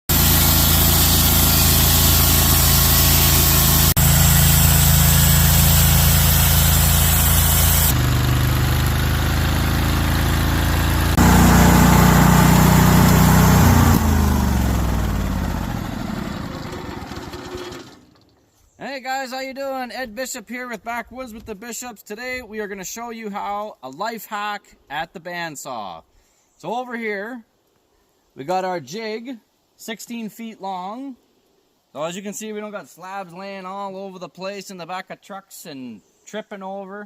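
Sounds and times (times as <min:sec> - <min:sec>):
engine running: 0:00.1 - 0:18.3.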